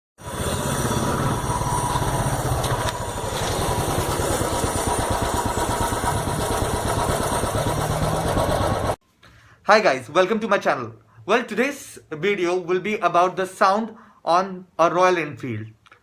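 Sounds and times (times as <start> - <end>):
motorcycle engine running at low revs: 0.6 - 9.0.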